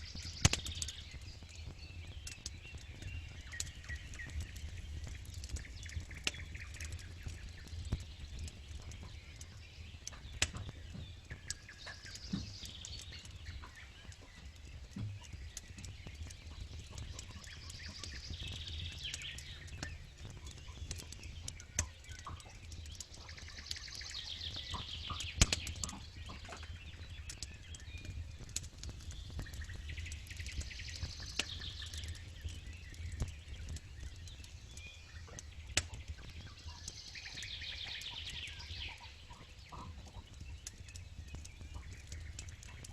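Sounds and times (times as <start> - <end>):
birdsong: 0.0 - 42.9
campfire crackling and popping: 0.0 - 42.9.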